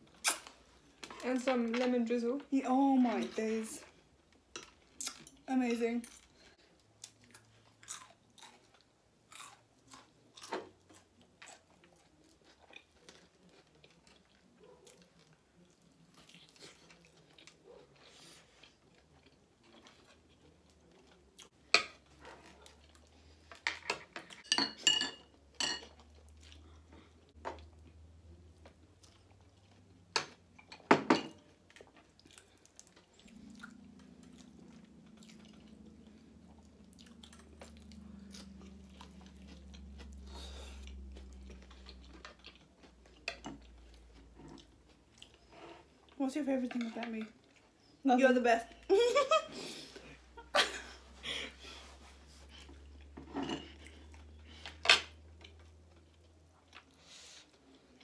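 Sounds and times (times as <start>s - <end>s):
people chewing and biting food: 6.2s - 24.4s, 31.4s - 46.2s.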